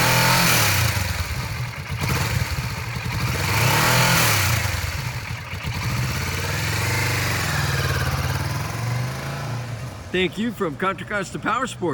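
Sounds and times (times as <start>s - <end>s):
motorcycle engine idling and revving: 0.0s - 10.1s.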